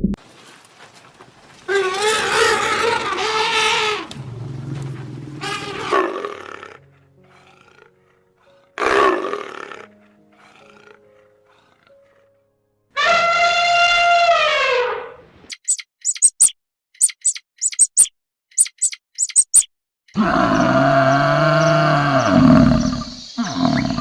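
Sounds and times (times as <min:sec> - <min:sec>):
loud animal calls: 0:01.7 - 0:12.2, 0:13.0 - 0:15.1, 0:17.2 - 0:24.0
soft background music: 0:04.2 - 0:13.0.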